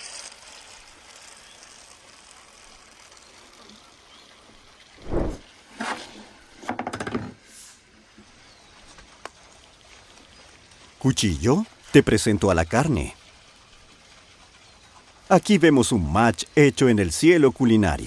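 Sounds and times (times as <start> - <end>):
brief hiss: 5.0 - 5.4.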